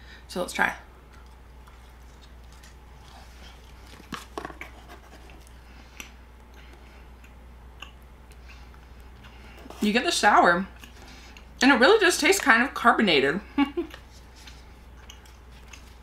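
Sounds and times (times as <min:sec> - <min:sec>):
steady low hum: 0:00.0 - 0:16.0
faint chewing candy: 0:01.0 - 0:09.8, 0:10.7 - 0:11.6, 0:13.8 - 0:16.0.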